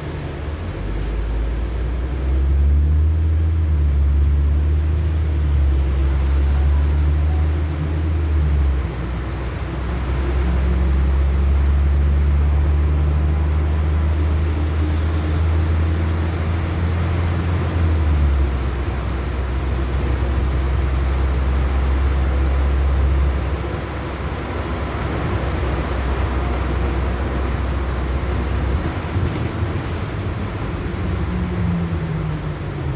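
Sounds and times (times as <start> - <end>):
bus engine drone: 0.0 - 32.9
road and cabin noise: 0.0 - 32.9.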